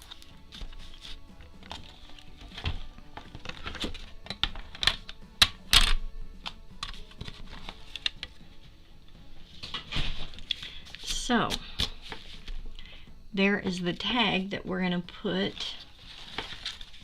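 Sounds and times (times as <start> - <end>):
faint background music: 0.0 - 17.0
paper rustling: 15.8 - 17.0.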